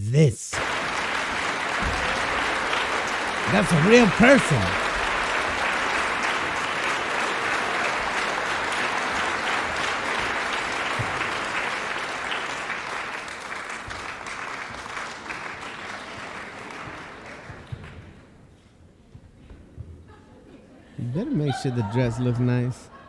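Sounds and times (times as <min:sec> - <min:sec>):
audience applauding: 0:00.6 - 0:18.2.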